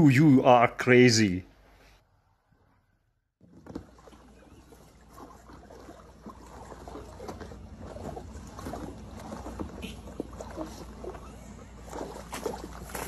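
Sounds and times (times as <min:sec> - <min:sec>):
dog pawing in water: 0:03.4 - 0:13.0
water splashing in plastic tub: 0:03.4 - 0:13.0.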